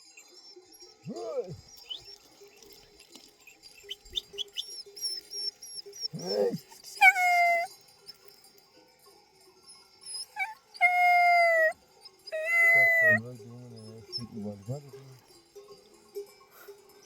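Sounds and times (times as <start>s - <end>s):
high-pitched animal cries: 6.0s - 7.7s, 10.1s - 13.2s.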